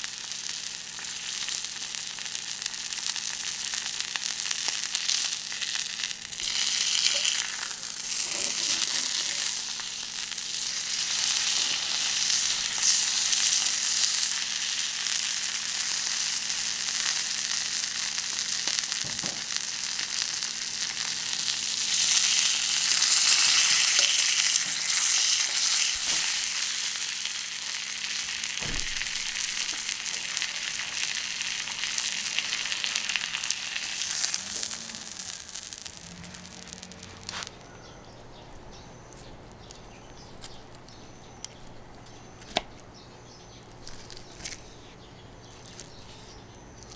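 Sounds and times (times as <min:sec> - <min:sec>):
steak sizzling on a griddle: 0:00.0 - 0:37.5.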